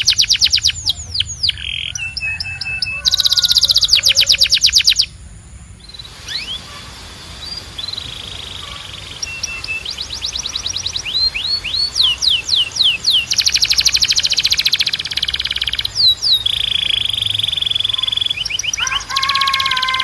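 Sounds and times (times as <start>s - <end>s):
canary singing: 0.0s - 20.0s.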